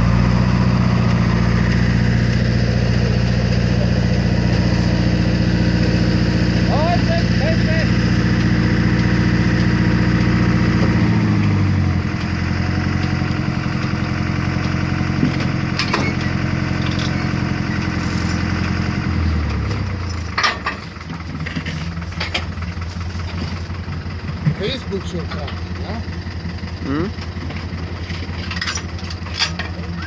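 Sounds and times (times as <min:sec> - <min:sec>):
farm machine engine running: 0:00.0 - 0:30.0
sharp knocks and rattles: 0:19.5 - 0:26.0.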